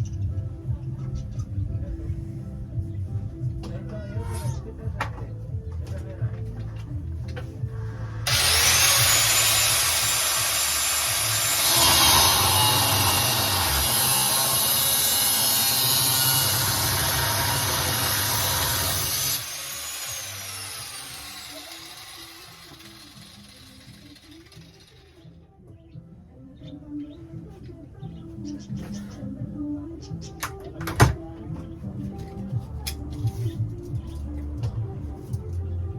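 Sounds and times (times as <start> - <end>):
grinder cutting metal: 8.2 - 25.2
grinder whining: 8.2 - 25.3.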